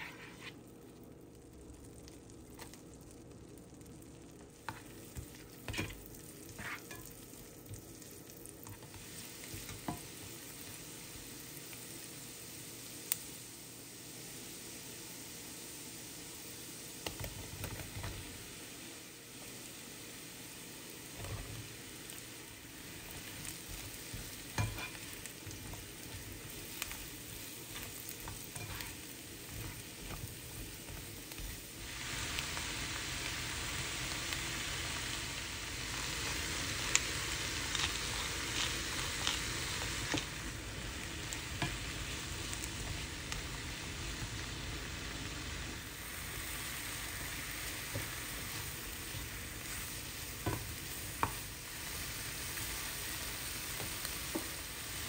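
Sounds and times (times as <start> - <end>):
mushrooms and onion sizzling: 0.0 - 55.0
spatula scraping and tapping pan: 4.6 - 6.0, 6.6 - 7.1, 8.6 - 10.1, 23.1 - 31.6, 41.5 - 41.9, 50.4 - 51.5.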